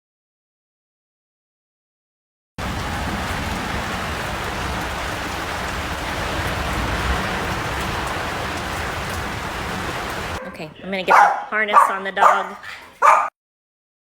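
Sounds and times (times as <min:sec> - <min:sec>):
heavy rain hissing: 0:02.6 - 0:10.4.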